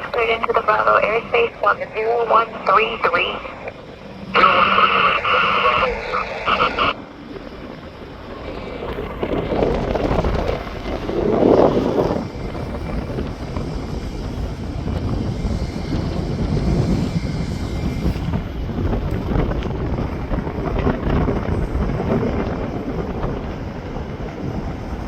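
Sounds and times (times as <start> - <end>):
jet engines rumbling: 0.0 - 25.0
wind buffeting microphone: 0.0 - 25.0.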